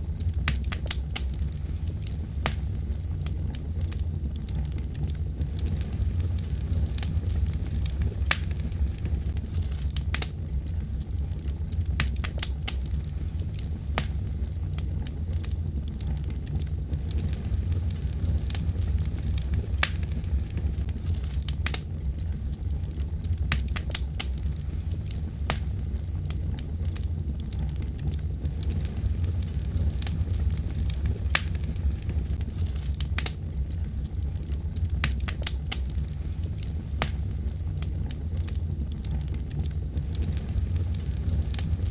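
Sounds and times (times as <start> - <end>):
wood fire crackling: 0.0 - 41.9.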